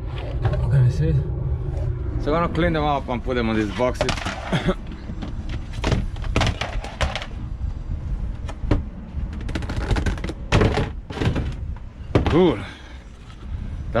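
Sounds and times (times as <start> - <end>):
steady low rumble: 0.0 - 14.0
hard objects knocking and clunking: 3.9 - 7.5, 8.5 - 12.7.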